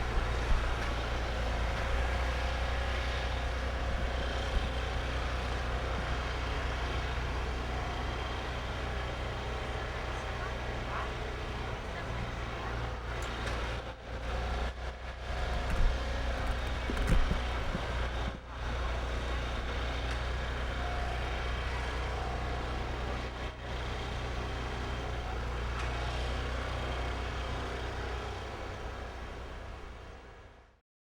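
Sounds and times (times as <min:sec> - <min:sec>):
vehicle engine and road noise: 0:00.0 - 0:30.8
short knocks: 0:15.5 - 0:18.2.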